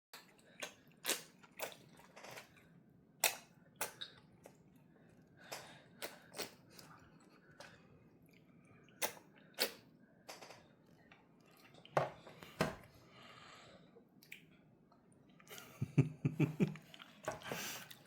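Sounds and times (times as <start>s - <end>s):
toddler eating clicks and smacks: 3.2s - 4.6s.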